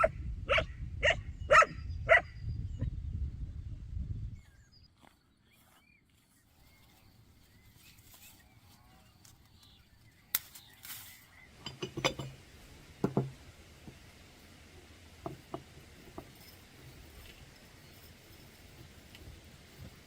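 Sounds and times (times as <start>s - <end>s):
cookware clinking and knocking: 11.6s - 12.4s.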